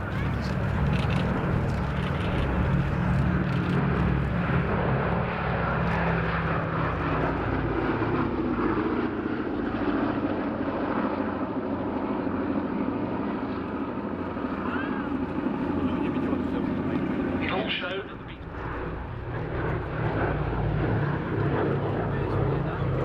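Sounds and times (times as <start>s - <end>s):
propeller plane droning overhead: 0.0s - 23.0s.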